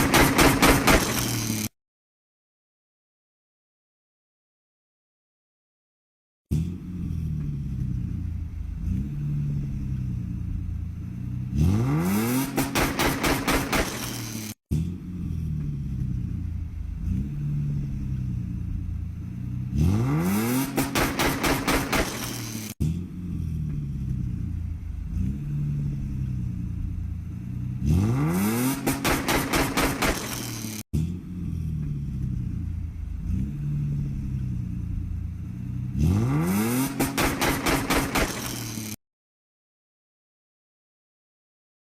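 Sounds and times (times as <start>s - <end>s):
exhaust pops and crackles: 0.0s - 1.6s, 12.4s - 14.6s, 20.6s - 22.8s, 28.8s - 30.8s, 37.0s - 39.0s
car engine idling and revving: 0.0s - 1.7s, 6.5s - 39.0s.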